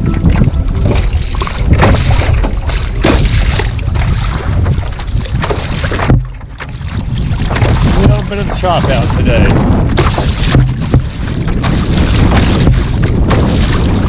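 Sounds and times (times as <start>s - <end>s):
water slapping against kayak hull: 0.0s - 14.0s
wind buffeting microphone: 0.0s - 14.0s.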